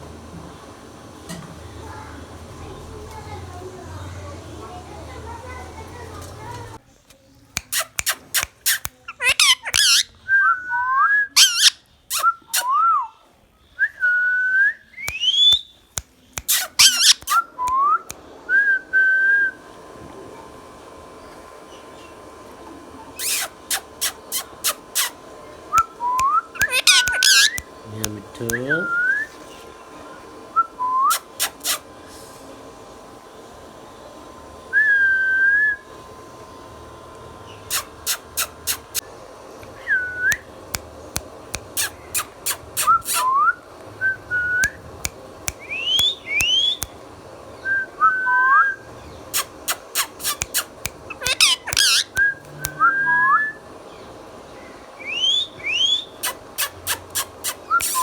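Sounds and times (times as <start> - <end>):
parrot clicking chirps: 7.6 - 10.1, 11.4 - 12.7, 15.0 - 17.6, 23.2 - 25.2, 25.8 - 28.7, 31.0 - 31.8, 37.7 - 39.0, 40.3 - 43.3, 44.6 - 47.0, 49.3 - 52.8, 55.1 - 58.0
parrot gliding whistles: 7.8 - 13.1, 13.8 - 15.9, 16.5 - 19.6, 23.2 - 27.7, 30.5 - 31.8, 34.7 - 35.8, 39.8 - 40.5, 41.8 - 44.8, 45.6 - 46.9, 47.6 - 53.7, 55.0 - 58.0.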